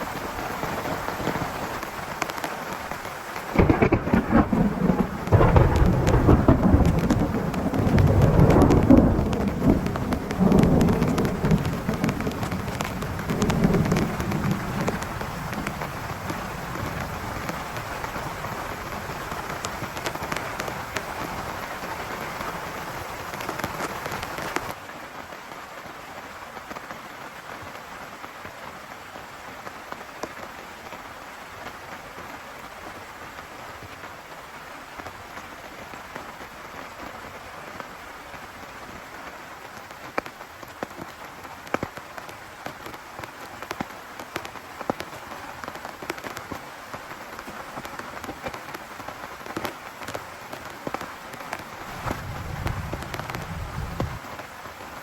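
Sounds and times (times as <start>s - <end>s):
raindrop hits: 0.0s - 24.8s, 47.3s - 54.4s
heavy rain on a tent: 0.0s - 55.0s
low thunder rumble: 3.5s - 19.6s, 51.9s - 54.3s.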